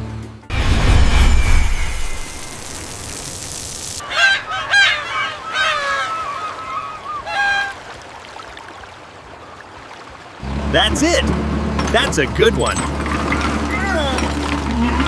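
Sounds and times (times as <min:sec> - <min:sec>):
whooshing hiss: 0:00.6 - 0:04.0
high-pitched squawking calls: 0:04.0 - 0:07.8.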